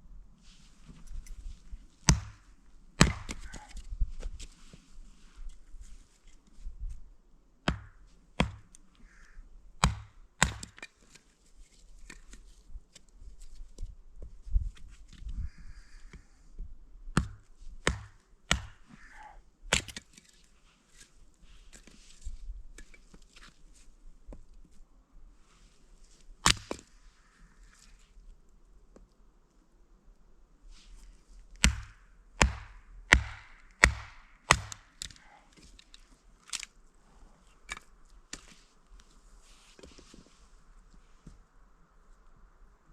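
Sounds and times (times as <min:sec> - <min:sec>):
wood being chopped: 0:02.1 - 0:03.7, 0:07.7 - 0:08.6, 0:09.8 - 0:10.9, 0:17.2 - 0:18.8, 0:19.7 - 0:20.1, 0:26.4 - 0:26.9, 0:31.6 - 0:35.3.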